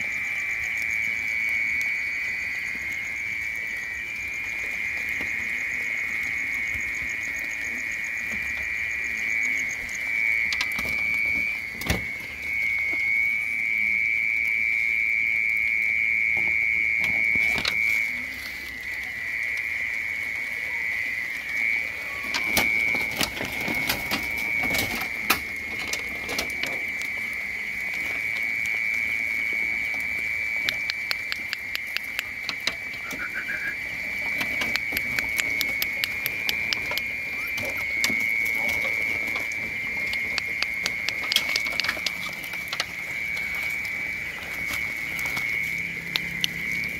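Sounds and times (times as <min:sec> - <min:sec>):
chorus of calling frogs or insects: 0:00.0 - 0:46.9
sharp clicks and taps: 0:30.6 - 0:32.7, 0:34.6 - 0:37.1, 0:40.1 - 0:42.9.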